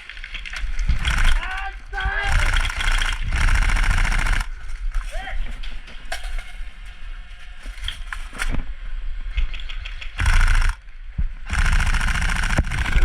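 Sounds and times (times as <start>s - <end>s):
airsoft gun full-auto bursts: 1.0s - 1.6s, 2.2s - 4.6s, 10.2s - 10.8s, 11.5s - 13.0s.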